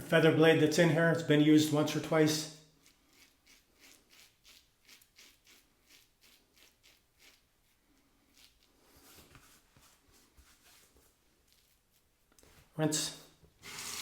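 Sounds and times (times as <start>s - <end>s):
razor scraping stubble: 2.8s - 12.5s.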